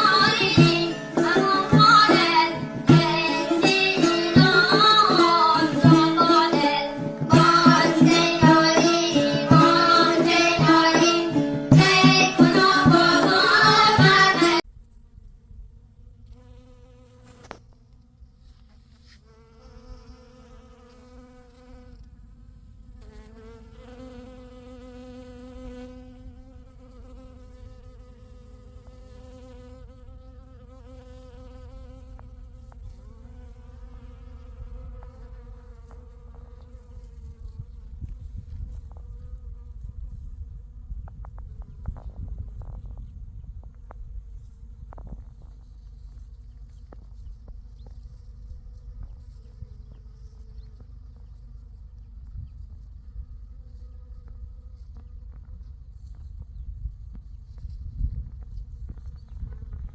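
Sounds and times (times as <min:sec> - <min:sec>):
music: 0:00.0 - 0:14.6
flying insect buzzing: 0:00.0 - 0:15.3, 0:16.0 - 0:17.8, 0:18.9 - 0:22.2, 0:22.9 - 0:43.7.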